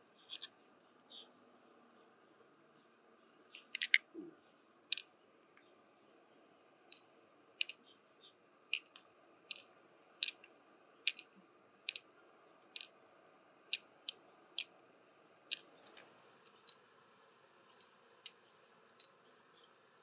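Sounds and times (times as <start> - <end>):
faint high-pitched whine: 0.0 - 20.0
sharp crisp clicks: 0.3 - 0.5, 3.6 - 4.0, 8.8 - 10.4, 11.1 - 11.3, 15.5 - 16.8.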